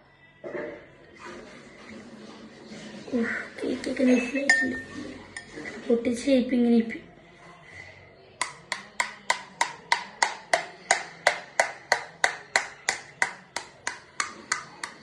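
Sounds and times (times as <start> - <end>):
knife tapping egg shell: 8.4 - 15.0.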